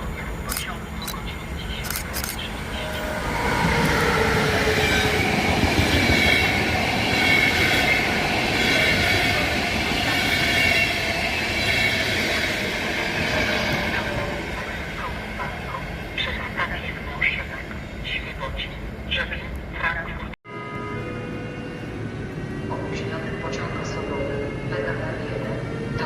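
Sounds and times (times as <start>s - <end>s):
train wheels rumbling: 0.0s - 19.9s.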